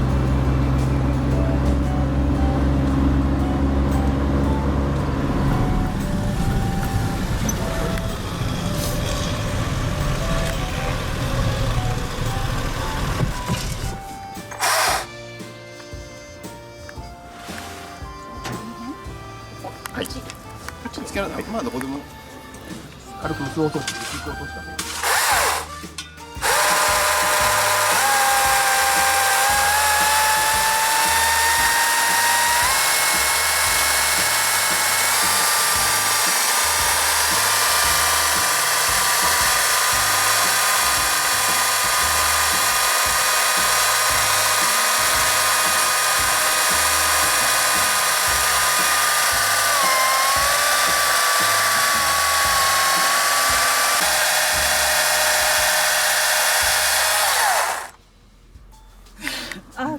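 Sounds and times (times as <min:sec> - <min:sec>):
power tool motor whine: 0:05.4 - 0:16.3, 0:24.8 - 0:25.8, 0:26.4 - 0:58.0.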